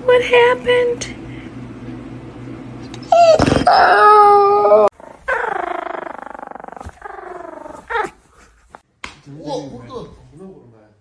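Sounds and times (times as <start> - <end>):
dog howling: 3.1 - 8.1.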